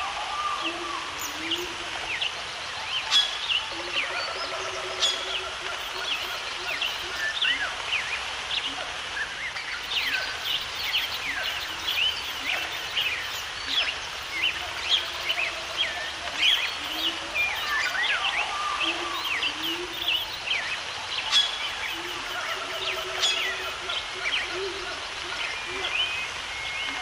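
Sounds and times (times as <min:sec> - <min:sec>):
many birds chirping: 0:00.0 - 0:27.0
steady background hiss: 0:00.0 - 0:27.0.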